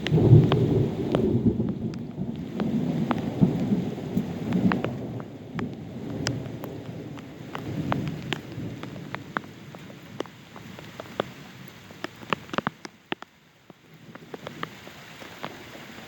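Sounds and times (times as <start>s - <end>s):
low thunder rumble: 0.0s - 10.3s
rain drops tapping: 0.0s - 16.0s.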